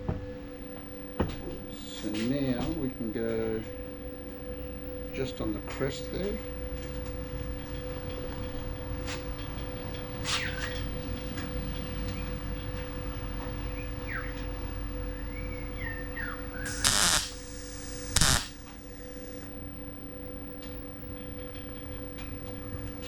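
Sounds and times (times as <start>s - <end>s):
steady hum: 0.0s - 8.1s, 16.7s - 23.0s
mig welding bursts: 16.7s - 19.4s.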